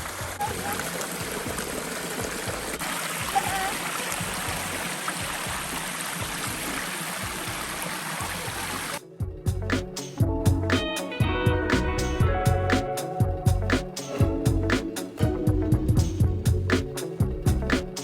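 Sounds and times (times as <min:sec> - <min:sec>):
waterfall and creek rushing: 0:00.0 - 0:09.0.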